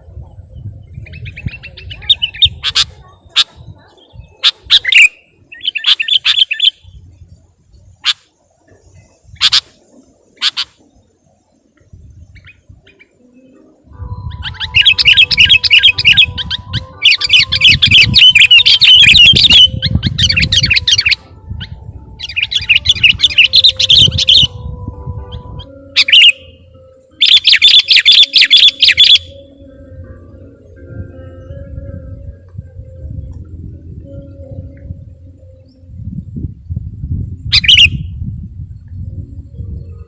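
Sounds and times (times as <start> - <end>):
bird singing chattering notes: 0.3 - 7.0, 11.7 - 36.4.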